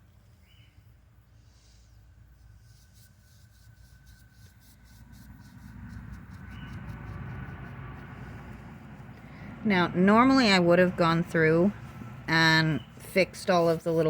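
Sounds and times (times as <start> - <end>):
paintbrush scraping concrete: 1.4 - 9.2, 10.0 - 14.0
vehicle passing rumble: 4.8 - 14.0.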